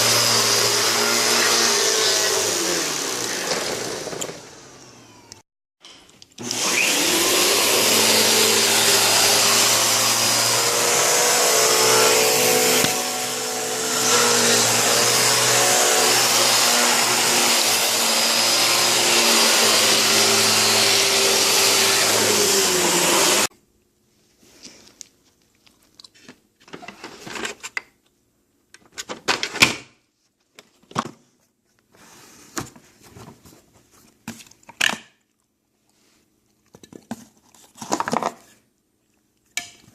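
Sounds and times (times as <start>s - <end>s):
vacuum cleaner motor whining: 0.0s - 5.4s, 6.4s - 23.5s.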